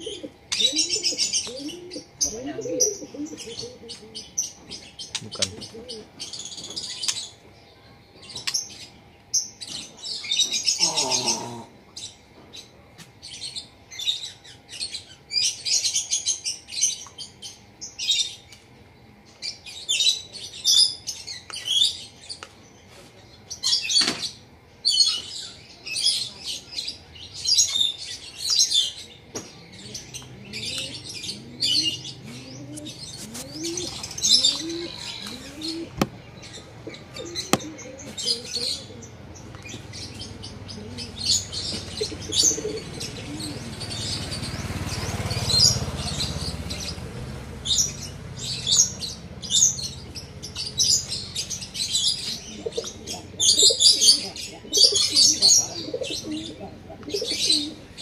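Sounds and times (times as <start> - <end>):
dove cooing: 0.0 - 6.4, 10.6 - 11.9, 29.6 - 58.0
small birds chirping: 0.0 - 58.0.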